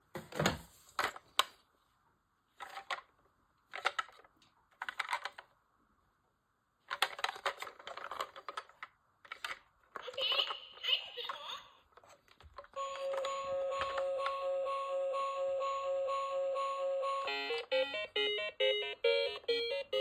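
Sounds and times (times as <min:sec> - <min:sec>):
plastic toy car rattling: 0:03.7 - 0:05.5, 0:06.8 - 0:10.6.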